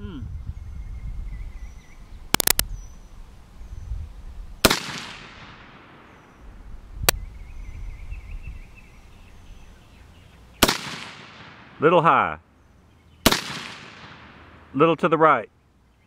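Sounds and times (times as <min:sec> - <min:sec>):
gunshot echo: 0:04.6 - 0:06.4, 0:10.6 - 0:11.8, 0:13.2 - 0:14.6
rifle shots: 0:04.6 - 0:06.4, 0:10.6 - 0:11.8, 0:13.2 - 0:14.6.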